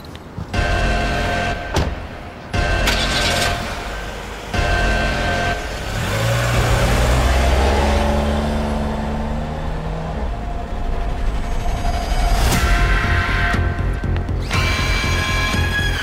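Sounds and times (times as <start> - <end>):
car engine accelerating: 2.8 - 12.6.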